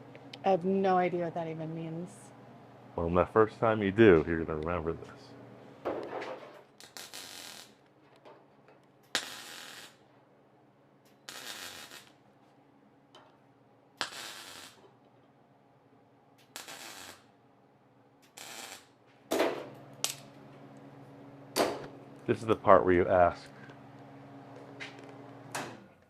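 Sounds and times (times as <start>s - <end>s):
welding crackling bursts: 6.8s - 7.8s, 9.1s - 10.0s, 11.1s - 12.2s, 14.0s - 14.8s, 16.4s - 17.3s, 18.2s - 19.0s.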